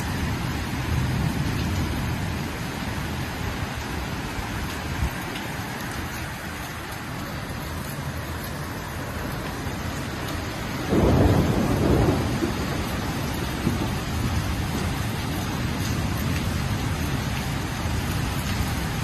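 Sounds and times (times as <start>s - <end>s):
heavy rain: 0.0s - 19.0s
thunder rumble: 10.0s - 19.0s.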